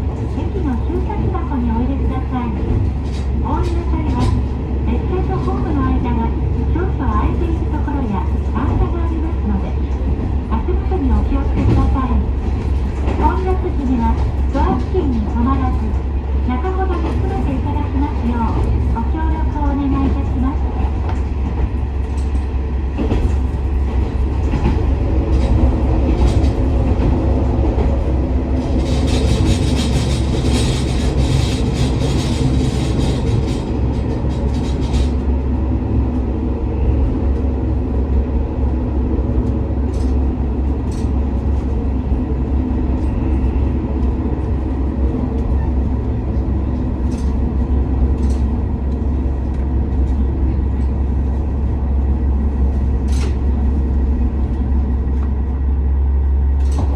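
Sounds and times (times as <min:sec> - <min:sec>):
train wheels on rails: 0:00.0 - 0:56.9
rail-joint clicks: 0:00.1 - 0:04.5, 0:06.8 - 0:16.0, 0:16.7 - 0:28.0, 0:28.6 - 0:35.3, 0:39.4 - 0:41.7, 0:46.3 - 0:51.0, 0:53.0 - 0:53.6, 0:56.5 - 0:56.9.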